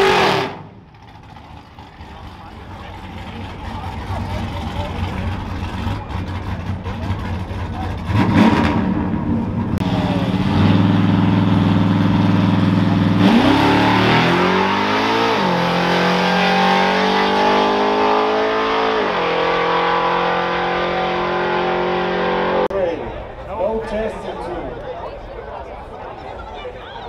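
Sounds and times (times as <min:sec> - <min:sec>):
vehicle engine revving: 0:00.0 - 0:22.7.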